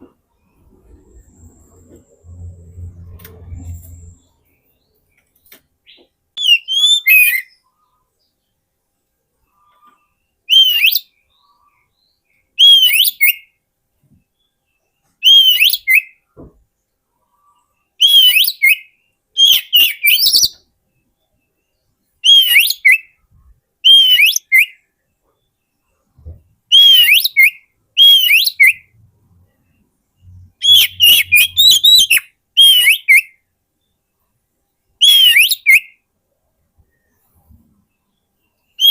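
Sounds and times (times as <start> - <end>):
bird whistled song phrases: 6.4 - 7.6, 10.5 - 11.2, 12.6 - 13.5, 15.2 - 16.2, 18.0 - 20.6, 22.2 - 23.2, 23.8 - 24.8, 26.7 - 28.9, 30.6 - 33.4, 35.0 - 36.0.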